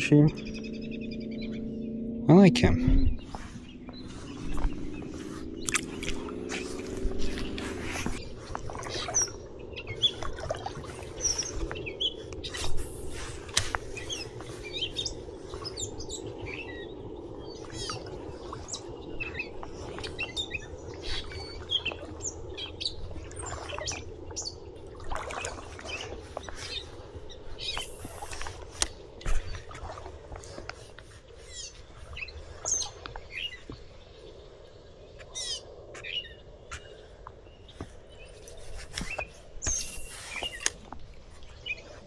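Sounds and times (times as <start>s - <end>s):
low rushing background: 0.0s - 8.5s
small birds chirping: 0.0s - 24.7s, 25.9s - 42.0s.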